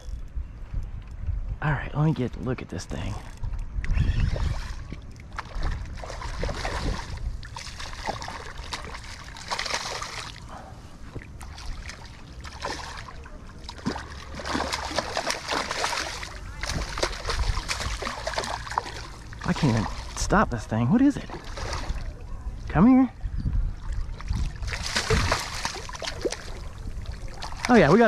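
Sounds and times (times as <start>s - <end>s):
fish splashing in shallow water: 4.0s - 20.3s, 21.2s - 22.4s, 23.7s - 28.0s.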